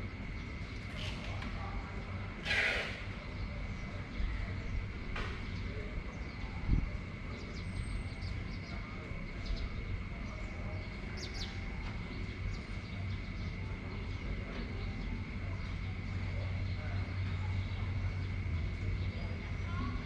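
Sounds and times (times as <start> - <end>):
steady high hum: 0.0 - 20.0
wind noise: 2.8 - 10.3.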